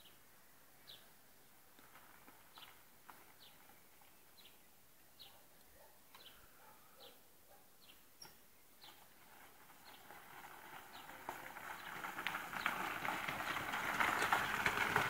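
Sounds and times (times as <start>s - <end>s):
bird chirping: 0.8s - 1.6s, 3.4s - 9.1s.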